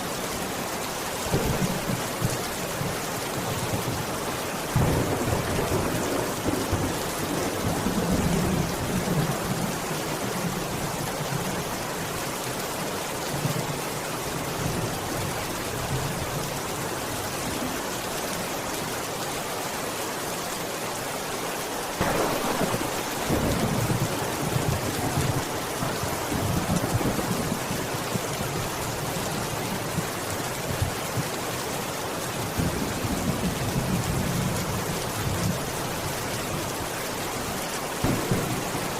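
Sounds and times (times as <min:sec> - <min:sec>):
heavy rain: 0:00.0 - 0:38.9
rolling thunder: 0:04.7 - 0:09.6, 0:22.0 - 0:27.7, 0:38.0 - 0:38.9
loud thunderclap: 0:04.8 - 0:07.0, 0:22.0 - 0:27.6, 0:38.0 - 0:38.9.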